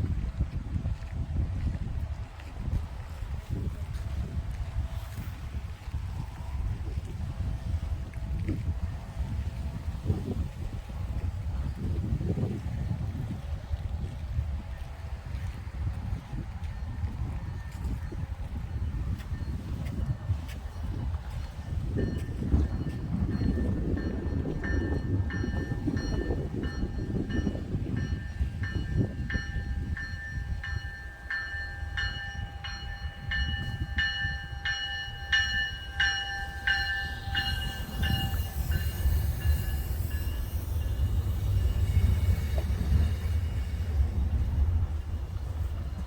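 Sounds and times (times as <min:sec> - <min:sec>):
train passing: 0:00.0 - 0:46.0
high steady tones: 0:22.3 - 0:46.0.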